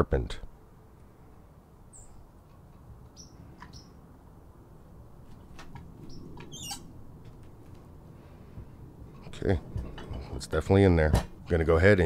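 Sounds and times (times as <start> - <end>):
small birds chirping: 1.9 - 4.1, 5.3 - 7.6.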